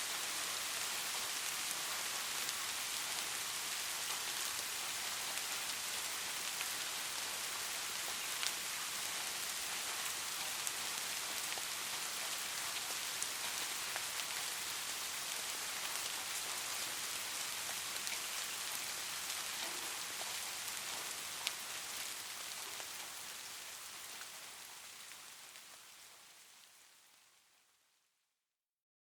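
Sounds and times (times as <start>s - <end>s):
light rain hiss: 0.0s - 28.2s
raindrop ticks: 19.3s - 21.6s.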